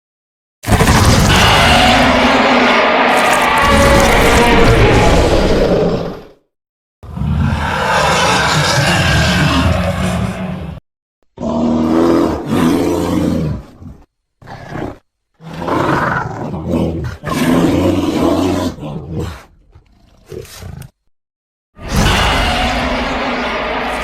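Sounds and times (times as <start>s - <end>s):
low monster roars: 0.7s - 6.4s, 7.0s - 10.8s, 21.8s - 24.0s.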